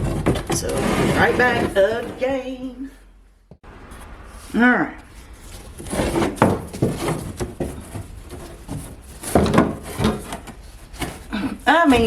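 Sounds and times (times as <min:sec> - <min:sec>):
wood knocking and scraping: 0:00.0 - 0:02.4, 0:05.0 - 0:12.0.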